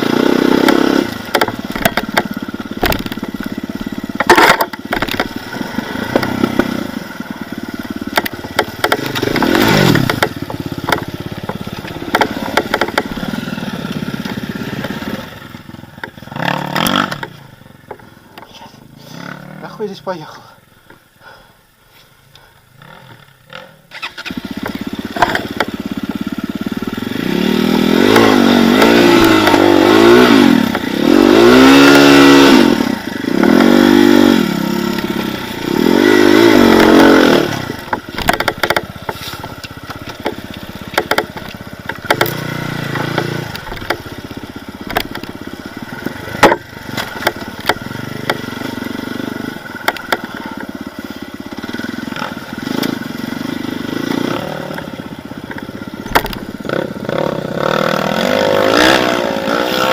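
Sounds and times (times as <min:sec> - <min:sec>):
motorcycle engine revving: 0:00.0 - 0:20.0, 0:22.7 - 0:59.9
clatter and knocks: 0:01.3 - 0:03.5, 0:04.2 - 0:05.4, 0:08.1 - 0:13.3, 0:37.8 - 0:44.2, 0:44.8 - 0:45.4, 0:46.0 - 0:48.4, 0:55.5 - 0:56.5.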